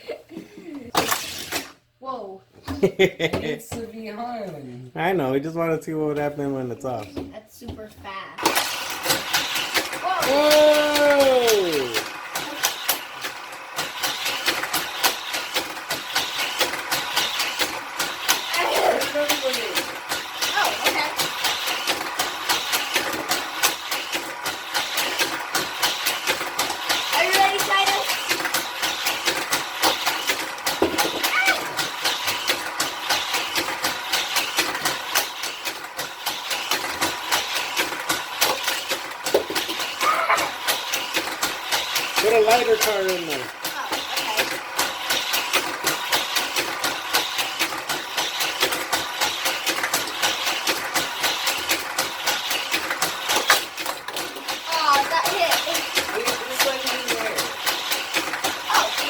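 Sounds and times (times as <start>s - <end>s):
toy car clattering on track: 0.9s - 1.8s, 8.4s - 59.0s
motorized boosters whirring: 8.4s - 59.0s.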